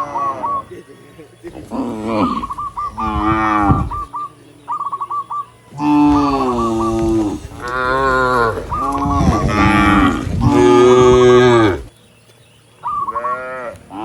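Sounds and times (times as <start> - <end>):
cattle mooing: 1.5 - 4.1, 5.8 - 11.9.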